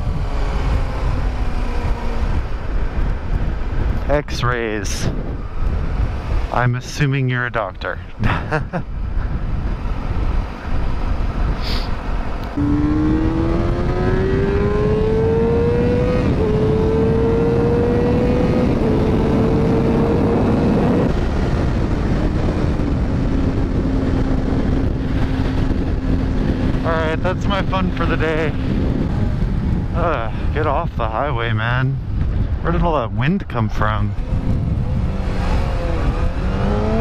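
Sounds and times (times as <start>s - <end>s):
motorcycle engine accelerating: 0.0s - 4.0s, 8.2s - 31.3s, 34.1s - 37.0s
wind on microphone: 0.0s - 37.0s.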